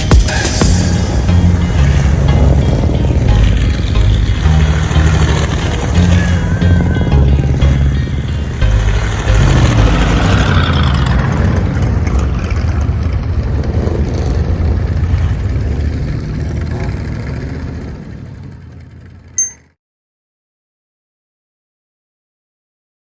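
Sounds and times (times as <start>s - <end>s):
car engine running: 0.6s - 19.4s.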